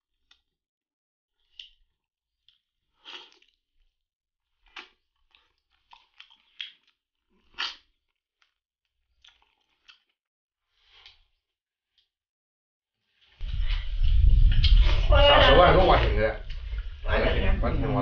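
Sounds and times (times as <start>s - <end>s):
person chewing and crunching: 1.4s - 12.1s.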